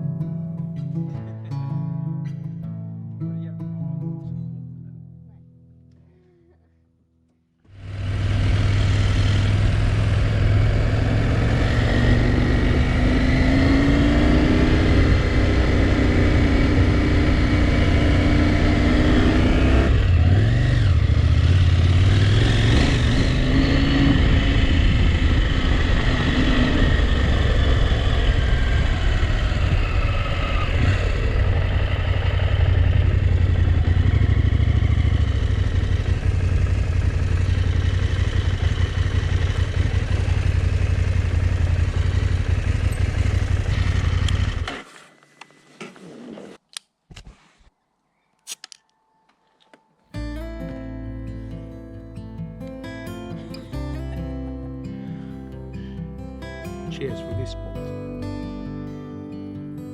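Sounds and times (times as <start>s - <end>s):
motorcycle engine running: 7.7s - 45.2s.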